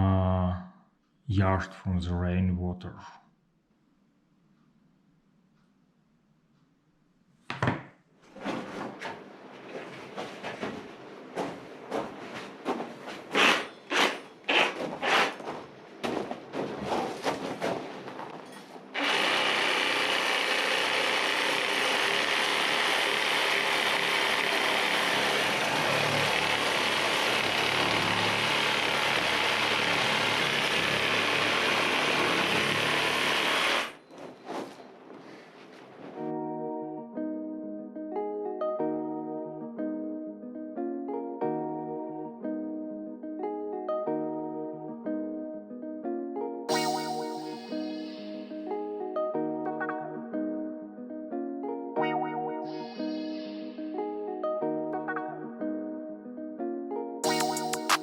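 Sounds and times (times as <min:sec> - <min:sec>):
hand tool strokes on wall: 0:13.2 - 0:15.5
power tool running: 0:18.9 - 0:34.0.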